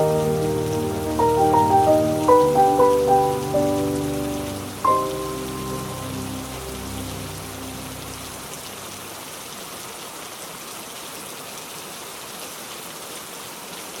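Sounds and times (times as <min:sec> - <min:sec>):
music chord: 0:00.0 - 0:08.8
steady rain pattering: 0:00.0 - 0:14.0.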